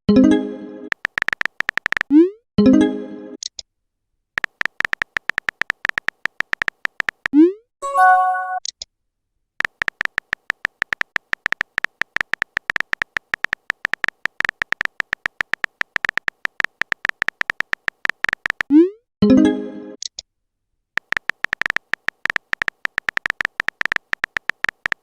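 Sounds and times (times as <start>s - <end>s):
typing clicks: 0.9s - 2.1s, 4.4s - 7.4s, 9.6s - 18.8s, 21.0s - 25.0s
message chime: 7.8s - 8.6s.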